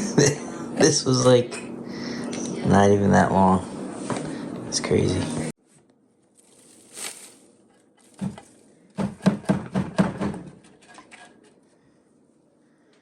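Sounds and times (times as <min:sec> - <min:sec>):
objects knocking and clicking: 0:08.0 - 0:11.6.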